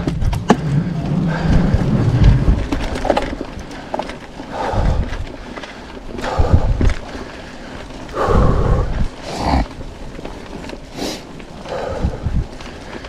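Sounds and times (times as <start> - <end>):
low rumble: 0.0 - 5.5, 6.1 - 7.4, 8.0 - 10.3
mountain bike rattling over bumps: 0.0 - 13.0.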